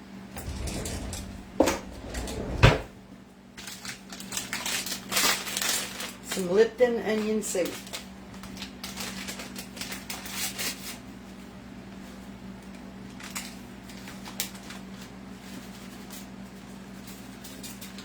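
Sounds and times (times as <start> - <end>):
steady low hum: 0.4 - 3.1.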